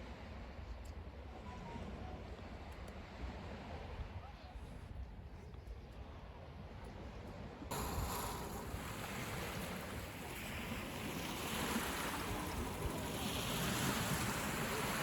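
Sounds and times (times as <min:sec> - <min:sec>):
surf washing onto beach: 0:07.7 - 0:15.0.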